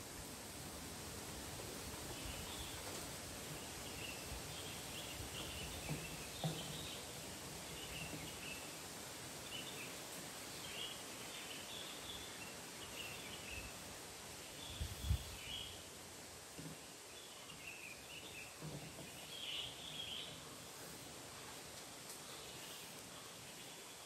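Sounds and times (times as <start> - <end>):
steady outdoor hiss: 0.0 - 24.0
small birds chirping: 2.1 - 16.0, 16.7 - 24.0.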